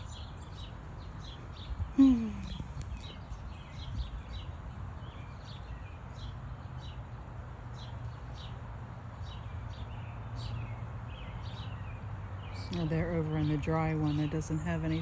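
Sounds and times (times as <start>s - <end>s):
low steady hum: 0.0s - 8.4s, 12.3s - 15.0s
small birds chirping: 0.0s - 15.0s.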